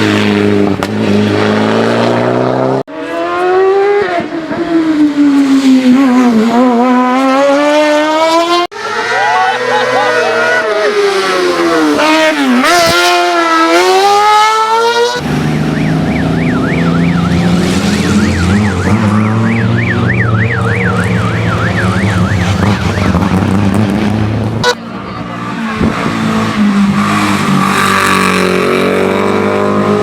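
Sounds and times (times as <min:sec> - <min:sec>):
race car engine revving: 0:00.0 - 0:30.0
warbling siren: 0:15.4 - 0:23.4.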